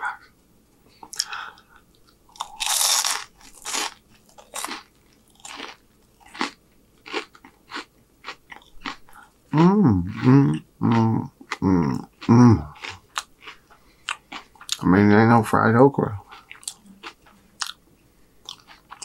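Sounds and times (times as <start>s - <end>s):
crunchy food being chewed: 1.1s - 14.9s, 16.2s - 17.8s, 18.4s - 19.0s
voiced hum: 9.0s - 19.0s.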